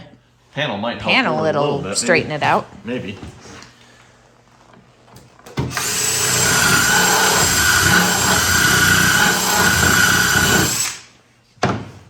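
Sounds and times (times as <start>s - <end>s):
power drill whine: 5.6s - 11.1s.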